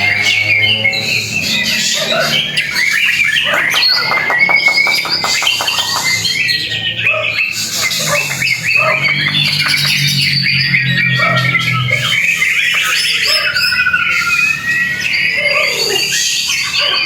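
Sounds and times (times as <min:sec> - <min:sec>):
bird singing varied song: 0:00.0 - 0:17.0.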